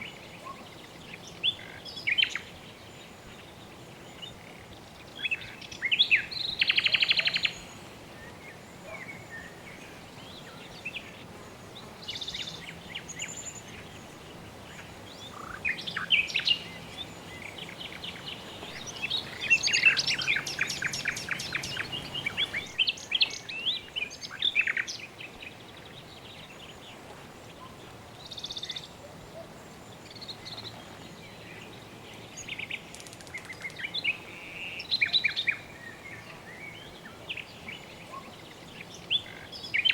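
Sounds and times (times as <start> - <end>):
birds chirping: 0.0 - 39.9
soft background hiss: 0.0 - 39.9.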